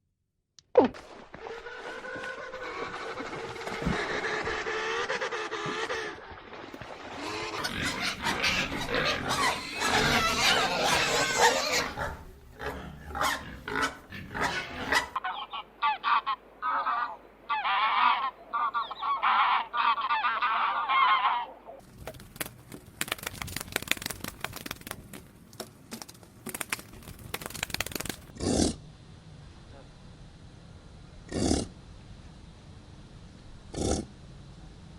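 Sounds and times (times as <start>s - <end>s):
geese honking: 1.4s - 6.2s, 7.1s - 21.8s.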